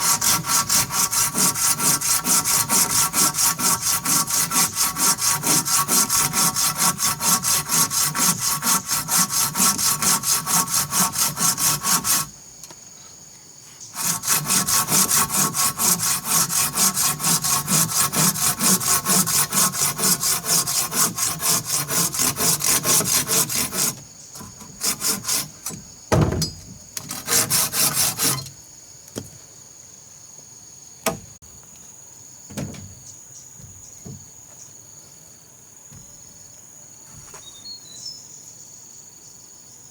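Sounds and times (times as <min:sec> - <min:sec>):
hand saw cutting wood: 0:00.0 - 0:12.3, 0:14.0 - 0:25.9, 0:27.0 - 0:28.5
insects chirring: 0:00.0 - 0:39.9.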